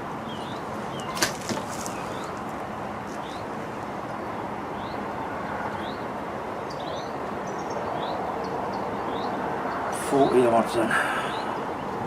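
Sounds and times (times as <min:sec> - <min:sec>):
bird chirping: 0:00.0 - 0:02.5, 0:03.1 - 0:04.2, 0:06.6 - 0:09.9.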